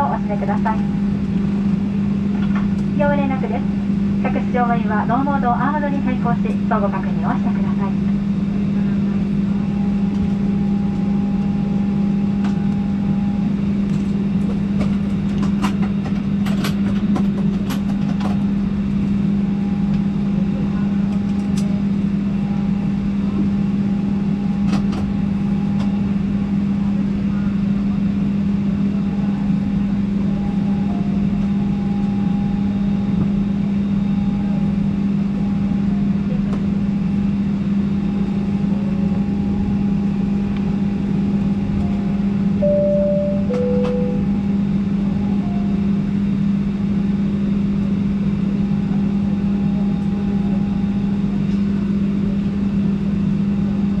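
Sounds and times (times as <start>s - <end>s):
aircraft cabin low hum: 0.0s - 54.0s
faint high tone: 41.9s - 44.4s.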